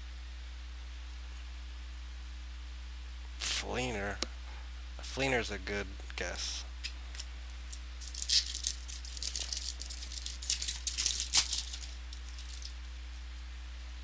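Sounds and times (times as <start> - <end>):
steady low hum: 0.0 - 14.0
trading cards rustling and flicking: 6.3 - 12.9.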